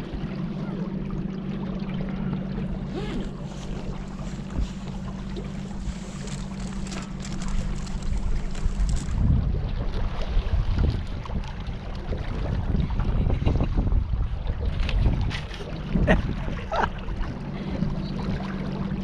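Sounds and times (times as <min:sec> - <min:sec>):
boat motor humming: 0:00.0 - 0:19.0
wind on microphone: 0:02.1 - 0:19.0.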